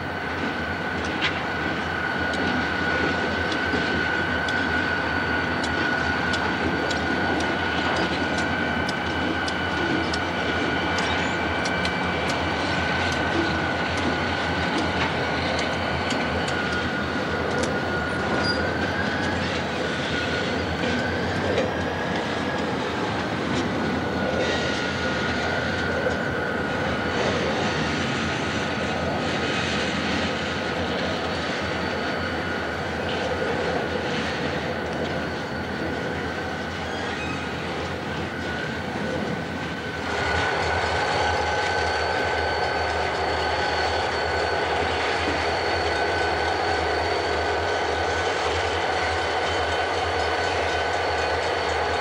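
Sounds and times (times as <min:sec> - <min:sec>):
wheels clicking over rail joints: 0:00.3 - 0:27.6
high wheel squeal: 0:01.6 - 0:52.0.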